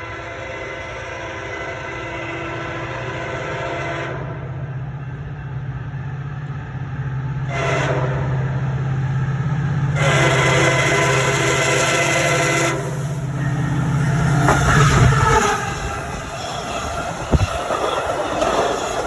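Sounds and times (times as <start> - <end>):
train horn blasts: 0.0 - 4.5, 7.4 - 8.6, 9.9 - 16.3
train rumble: 0.0 - 19.0.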